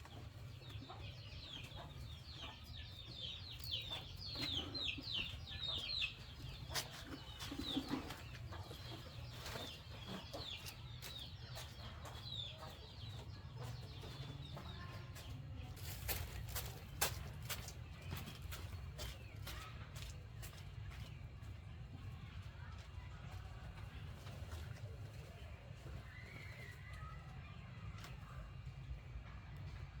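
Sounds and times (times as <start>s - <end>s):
birds chirping: 0.0s - 22.7s.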